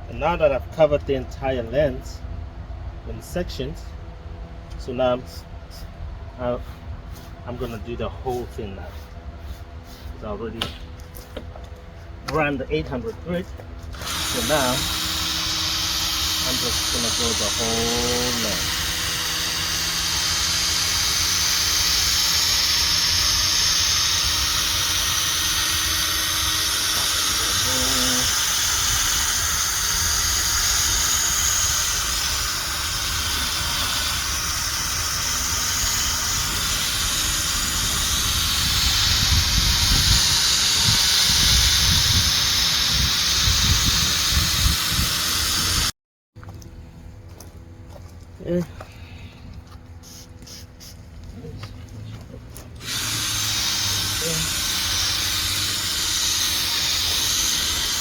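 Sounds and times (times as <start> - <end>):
drill sanding pad whirring: 12.4 - 45.9, 52.6 - 58.0.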